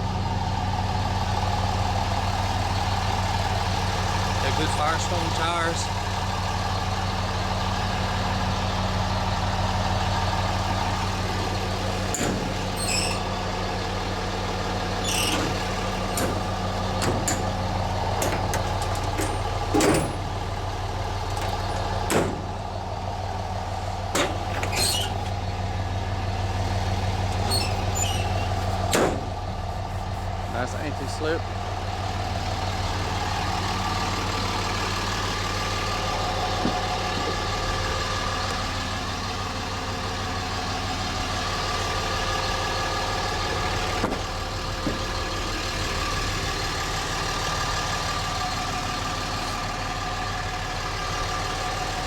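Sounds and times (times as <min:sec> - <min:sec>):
diesel engine idling: 0:00.0 - 0:52.0.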